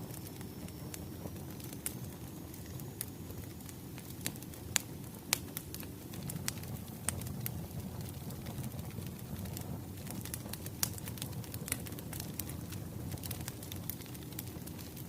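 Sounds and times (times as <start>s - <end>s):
firewood crackling: 0.0s - 15.0s
low rumble of flames: 0.0s - 15.0s
sharp pops of fire: 0.0s - 15.0s.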